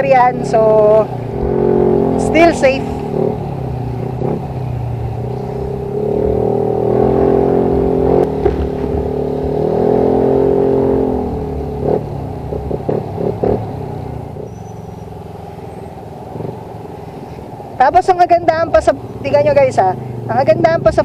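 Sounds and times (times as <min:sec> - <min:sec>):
motorcycle engine revving: 0:00.0 - 0:21.0
short sharp exhaust pops: 0:08.2 - 0:09.1.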